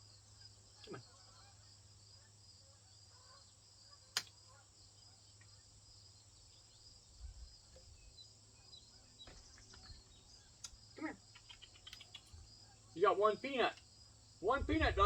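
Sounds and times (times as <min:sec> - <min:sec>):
insects chirring: 0:00.0 - 0:15.0
sharp click: 0:04.1 - 0:04.4.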